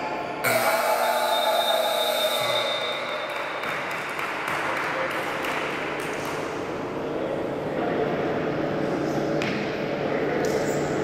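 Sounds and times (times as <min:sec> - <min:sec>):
basketball court noise: 0:00.4 - 0:06.7.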